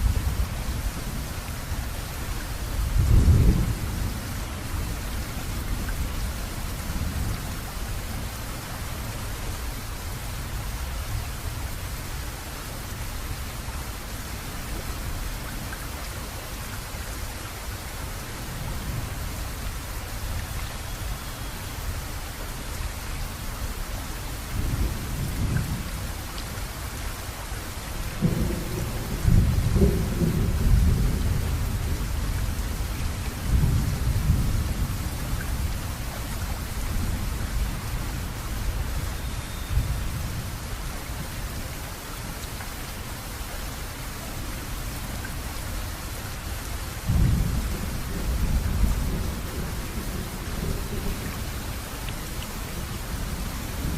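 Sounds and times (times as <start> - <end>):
heavy rain: 0.0 - 53.9
thunder rumbling: 28.2 - 36.1, 47.0 - 52.0.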